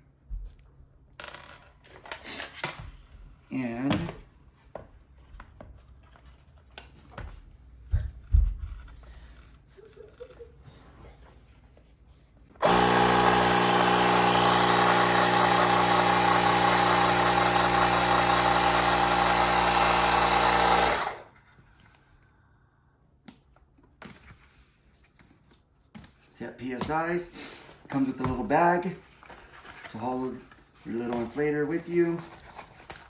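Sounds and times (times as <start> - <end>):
tire inflator compressor running: 12.6 - 21.3.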